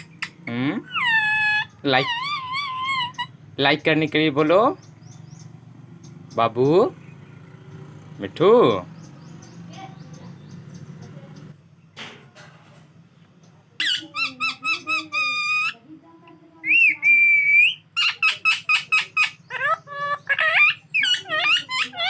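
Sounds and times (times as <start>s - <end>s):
parrot squawking and chirping: 0.0s - 7.2s, 13.8s - 15.8s, 16.6s - 22.0s.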